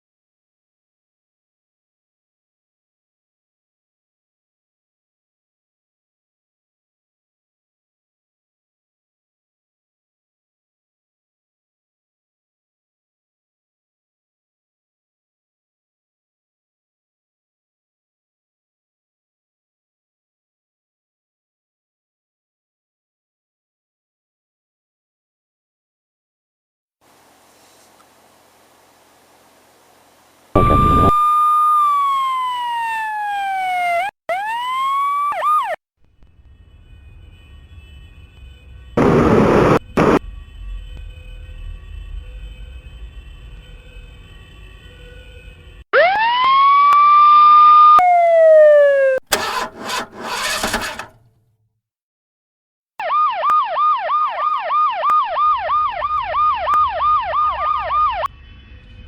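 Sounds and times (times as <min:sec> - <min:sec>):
police siren wailing and yelping: 0:31.8 - 0:35.8.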